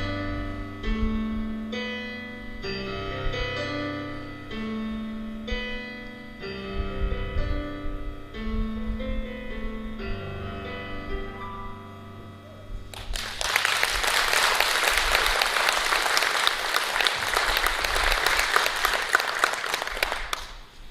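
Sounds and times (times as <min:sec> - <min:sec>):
piano music: 0:00.0 - 0:20.3
audience applauding: 0:12.9 - 0:20.7.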